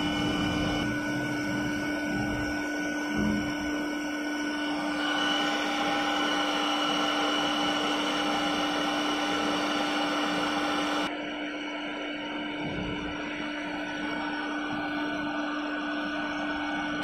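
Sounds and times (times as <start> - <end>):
machine whirring: 0.0 - 11.4
high whine: 0.0 - 17.0.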